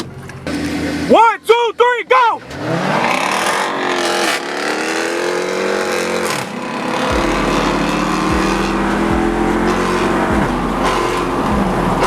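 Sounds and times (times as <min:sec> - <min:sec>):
car engines at full throttle: 0:00.0 - 0:12.0
deep engine rumble: 0:02.4 - 0:12.0.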